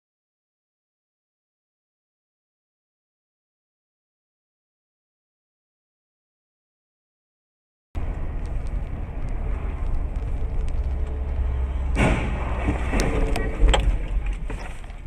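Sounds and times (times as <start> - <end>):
road rumble: 8.0 - 15.0.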